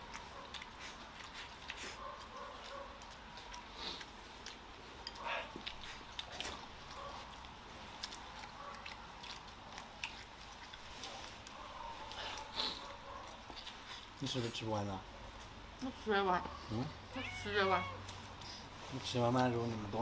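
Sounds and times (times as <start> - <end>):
person chewing food: 0.0 - 14.2.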